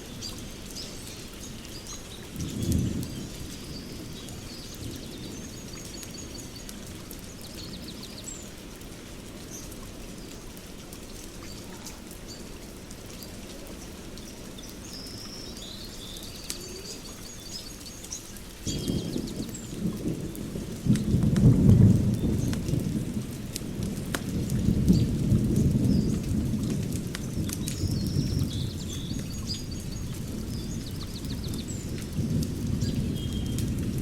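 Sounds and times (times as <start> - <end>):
sharp crackles: 0.0 - 34.0
steady rain: 0.0 - 34.0
birds chirping: 13.7 - 19.9.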